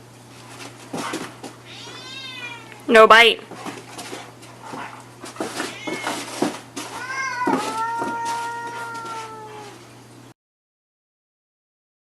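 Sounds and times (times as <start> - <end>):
cat yowling: 1.7 - 2.8, 5.6 - 9.8.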